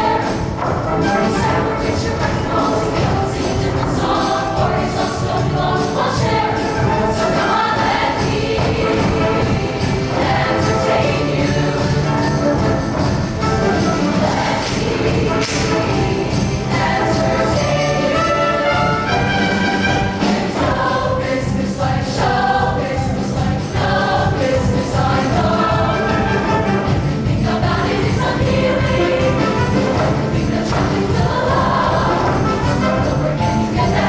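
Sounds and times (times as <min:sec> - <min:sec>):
band accompaniment with steady beat: 0:00.0 - 0:34.0
choir singing in harmony: 0:00.0 - 0:34.0
jingling tambourine-like percussion: 0:00.0 - 0:34.0.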